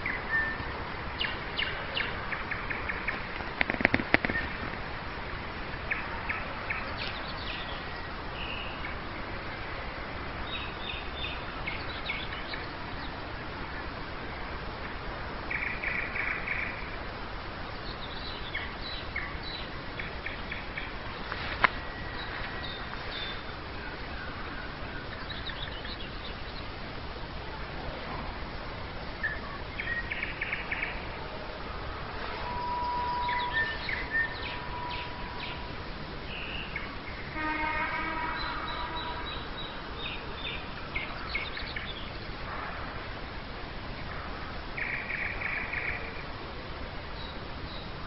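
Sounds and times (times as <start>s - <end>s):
nightingale singing: 0.0s - 26.8s, 27.6s - 42.4s, 44.8s - 46.4s, 47.1s - 48.0s
low background noise: 0.0s - 48.0s.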